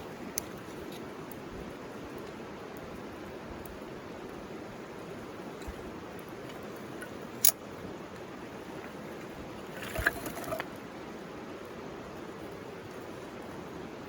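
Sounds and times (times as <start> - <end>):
burning bamboo cracking: 0.0 - 10.8.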